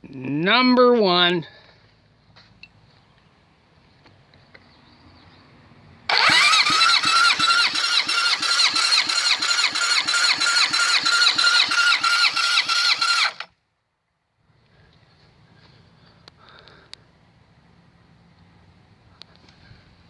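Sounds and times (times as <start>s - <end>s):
starter motor cranking car engine: 6.1s - 13.5s.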